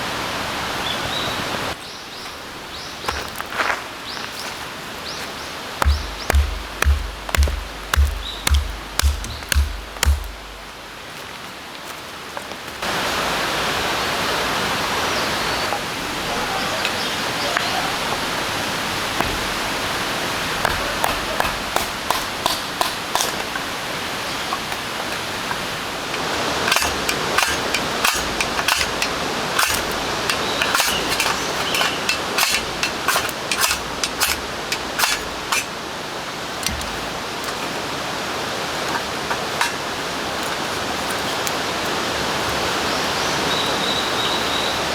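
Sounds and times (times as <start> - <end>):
sharp taps and pops: 5.8 - 10.9
rain falling: 5.8 - 11.2.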